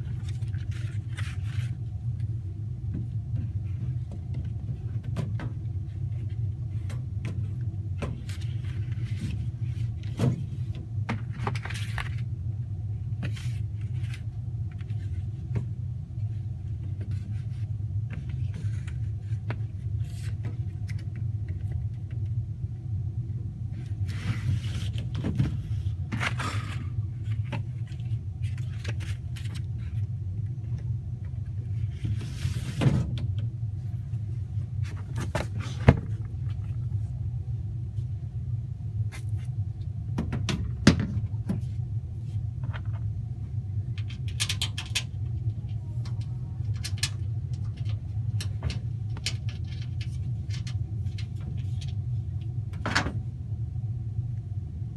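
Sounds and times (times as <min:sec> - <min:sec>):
rustling handling noises: 0:00.0 - 0:12.4, 0:33.7 - 0:37.2
low mechanical rumble: 0:00.0 - 0:54.9.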